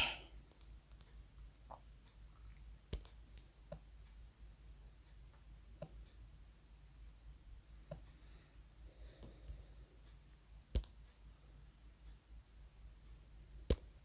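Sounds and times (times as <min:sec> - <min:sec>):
room hum: 0:00.0 - 0:14.0
fingertip taps on touchscreen: 0:02.9 - 0:03.9, 0:07.8 - 0:08.1, 0:10.7 - 0:11.0, 0:13.6 - 0:14.0.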